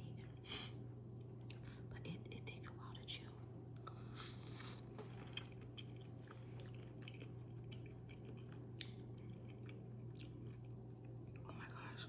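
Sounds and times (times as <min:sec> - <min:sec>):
steady low hum: 0:00.0 - 0:12.0
chewing food: 0:03.8 - 0:11.5.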